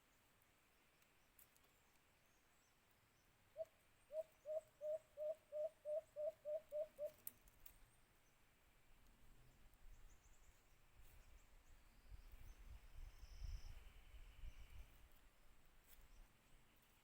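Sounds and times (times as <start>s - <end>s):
dove cooing: 3.6s - 7.2s.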